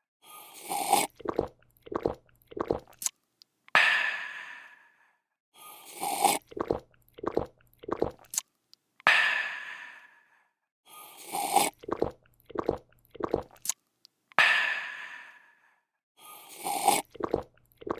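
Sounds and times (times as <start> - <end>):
person slurping and gulping: 0.4 - 3.1, 5.8 - 8.4, 11.1 - 13.8, 16.4 - 17.9.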